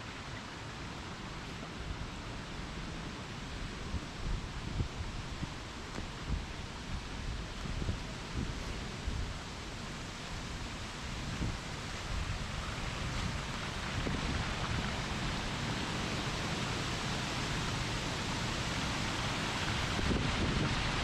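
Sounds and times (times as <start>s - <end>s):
wind buffeting microphone: 3.7s - 9.6s, 10.4s - 21.0s
waterfall rushing: 8.1s - 21.0s.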